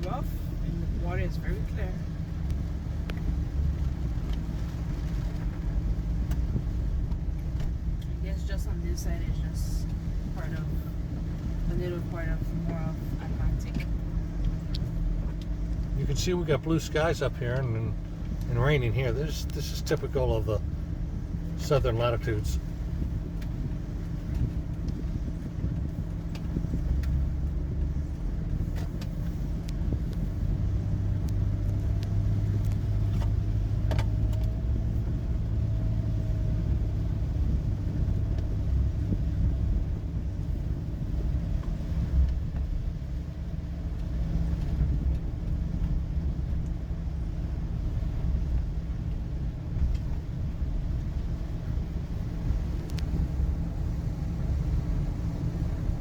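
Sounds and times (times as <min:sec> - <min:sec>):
car interior road rumble: 0:00.0 - 0:56.0
faint click: 0:52.8 - 0:53.1.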